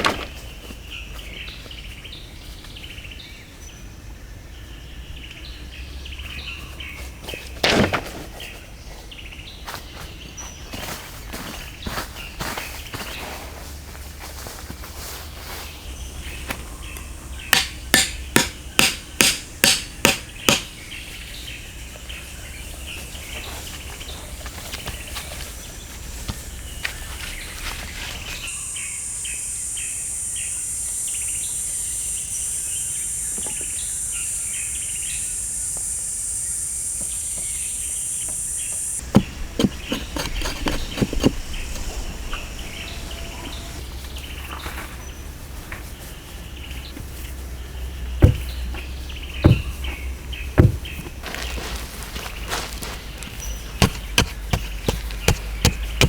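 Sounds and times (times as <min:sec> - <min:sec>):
tool striking wood: 0:17.5 - 0:20.8, 0:39.0 - 0:42.4, 0:48.2 - 0:48.6, 0:49.4 - 0:49.9, 0:50.6 - 0:51.1, 0:53.8 - 0:56.0
high-pitched insect drone: 0:28.4 - 0:39.0
bird chirps: 0:48.0 - 0:51.6.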